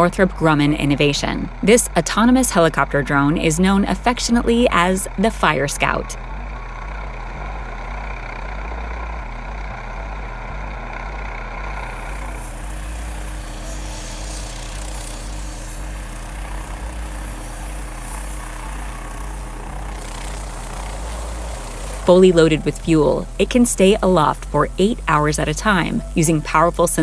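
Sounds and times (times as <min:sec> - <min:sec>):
drone engine and rotor noise: 0:00.0 - 0:27.0
hiss: 0:12.0 - 0:18.7.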